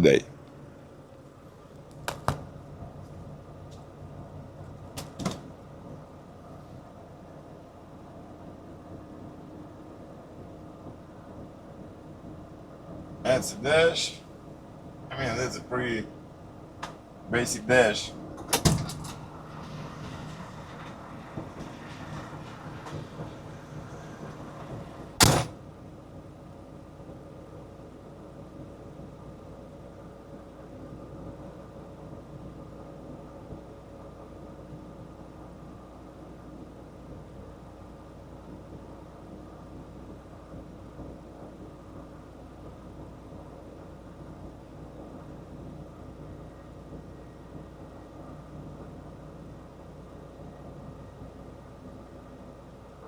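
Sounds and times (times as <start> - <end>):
truck engine idling: 17.0 - 25.4
loud thump: 25.2 - 25.6.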